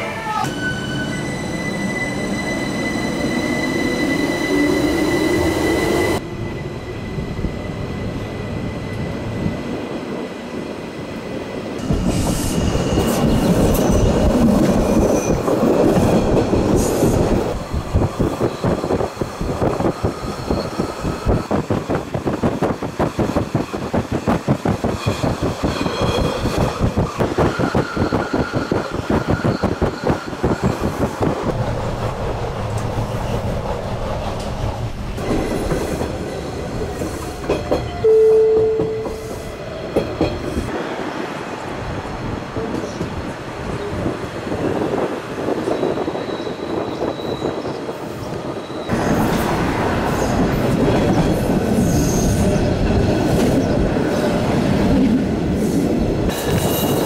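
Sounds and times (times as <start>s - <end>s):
train rumble: 11.7s - 57.0s.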